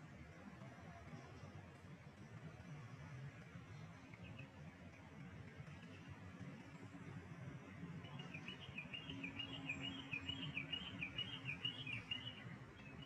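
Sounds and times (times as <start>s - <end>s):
small bird chirping: 8.1s - 13.0s.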